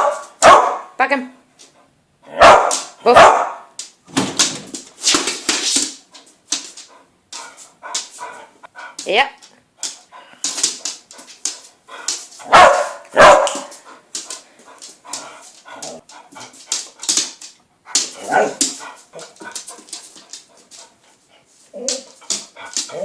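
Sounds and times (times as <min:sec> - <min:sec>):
dog barking and yipping: 0:00.0 - 0:01.0, 0:02.3 - 0:03.7, 0:12.4 - 0:13.8, 0:18.1 - 0:19.8.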